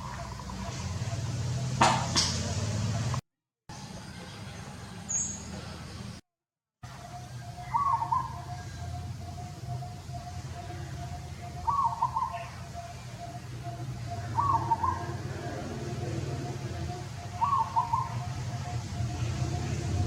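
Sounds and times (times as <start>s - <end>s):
animal calls: 7.0s - 19.4s.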